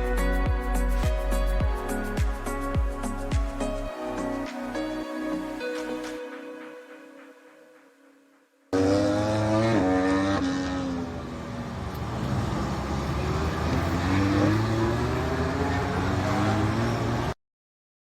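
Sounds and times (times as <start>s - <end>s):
motorcycle engine revving: 8.7s - 17.4s.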